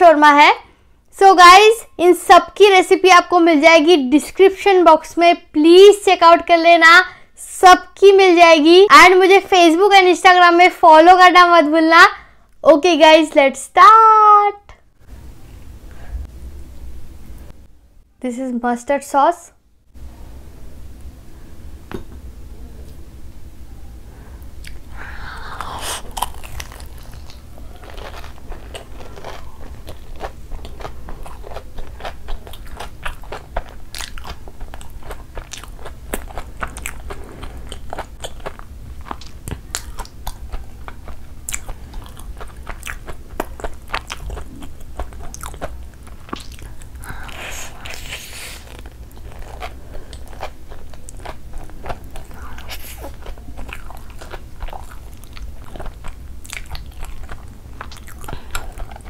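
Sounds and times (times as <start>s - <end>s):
wet mouth clicks: 24.6s - 24.8s
crunchy bites: 25.4s - 59.0s
chewing: 25.5s - 59.0s.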